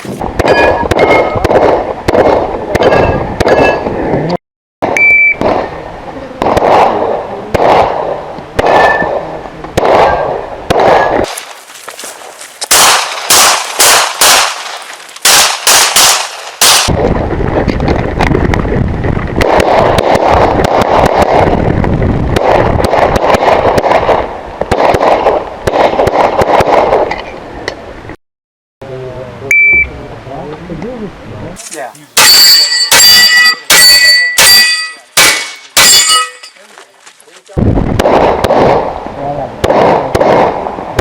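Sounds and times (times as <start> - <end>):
pistol shots: 0.0 - 3.8, 6.4 - 9.2, 9.8 - 16.9, 32.2 - 36.4, 38.0 - 39.0, 39.6 - 41.0
short electronic beep: 5.0 - 5.4, 29.5 - 29.9.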